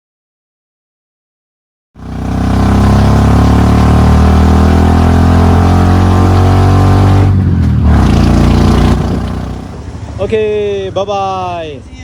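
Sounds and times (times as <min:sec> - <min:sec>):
vehicle engine running: 0:02.0 - 0:10.2.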